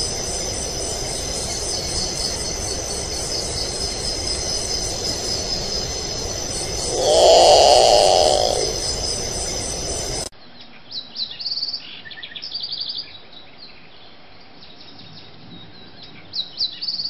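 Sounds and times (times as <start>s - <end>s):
crickets chirring: 0.0s - 10.3s
low hiss: 0.0s - 10.3s
lower insect call: 0.0s - 10.3s.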